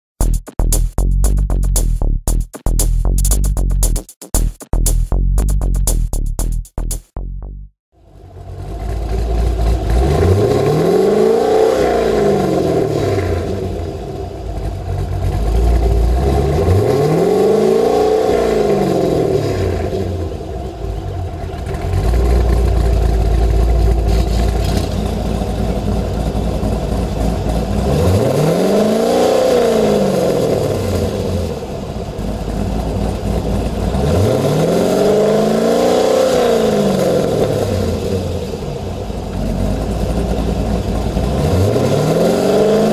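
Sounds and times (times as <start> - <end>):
engine idle rumble: 8.0 - 10.7, 13.3 - 16.7, 19.6 - 28.2, 30.5 - 34.2, 37.4 - 41.4
car engine revving: 8.1 - 42.9.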